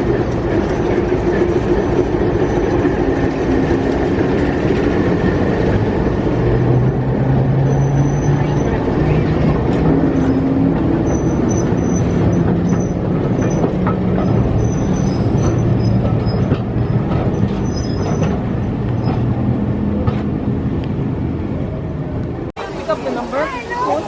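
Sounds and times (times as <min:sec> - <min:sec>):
train rumbling: 0:00.0 - 0:24.0
train wheel squeals: 0:01.6 - 0:03.1, 0:07.6 - 0:09.2, 0:10.0 - 0:19.4.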